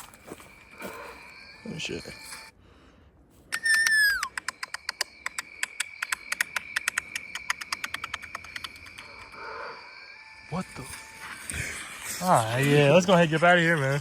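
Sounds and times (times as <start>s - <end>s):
whistled call sliding down: 3.5s - 8.9s
quick sharp ticks: 3.5s - 9.2s.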